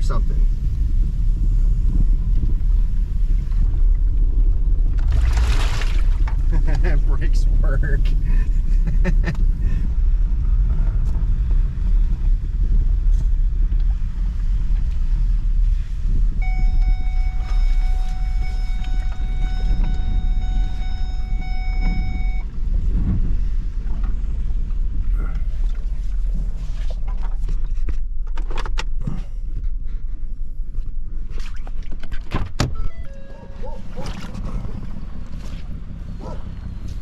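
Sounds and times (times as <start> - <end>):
car engine rumbling: 0.0 - 37.0
steady high tone: 16.4 - 22.5.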